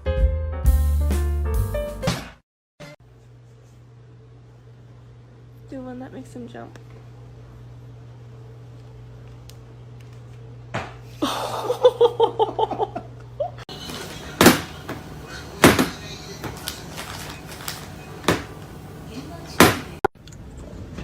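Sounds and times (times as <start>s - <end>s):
person laughing: 11.2s - 15.6s.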